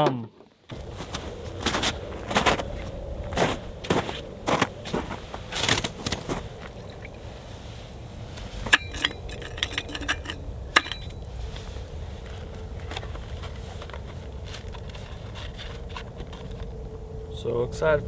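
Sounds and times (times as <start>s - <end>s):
low hum: 0.7s - 18.0s
container and spoon clicking: 8.7s - 11.2s.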